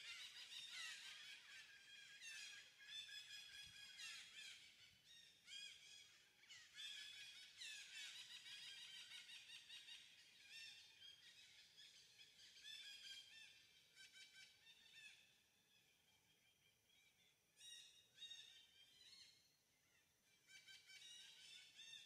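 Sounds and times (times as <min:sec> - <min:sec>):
faint small birds chirping: 0:00.0 - 0:22.0.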